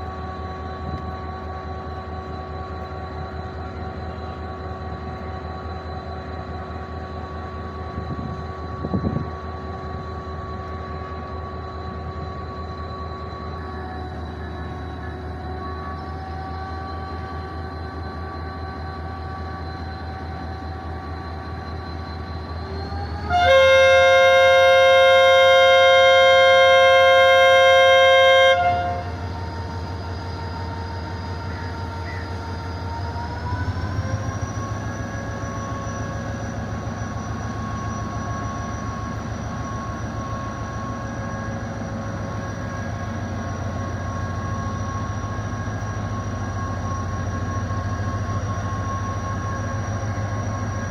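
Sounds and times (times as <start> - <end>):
diesel locomotive engine: 0.0 - 50.9
locomotive horn blast: 23.2 - 29.4.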